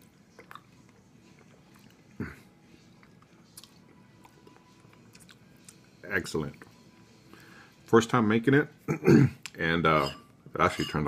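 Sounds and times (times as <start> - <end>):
person chewing food: 0.0 - 5.8.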